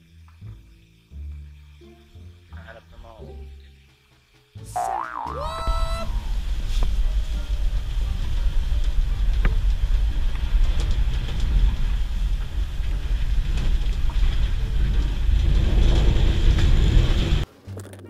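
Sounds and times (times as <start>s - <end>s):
truck engine and road rumble: 6.1s - 18.0s.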